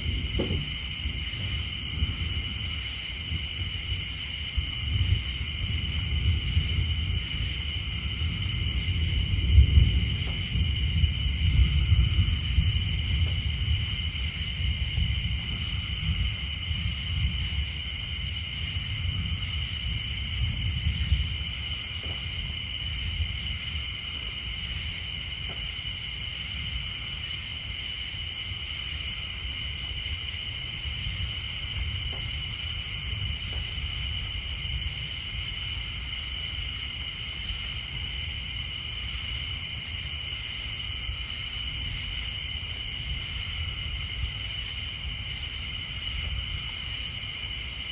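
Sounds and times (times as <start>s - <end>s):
distant thunder rumble: 0.0s - 26.1s
tree frogs and insects trilling: 0.0s - 47.9s.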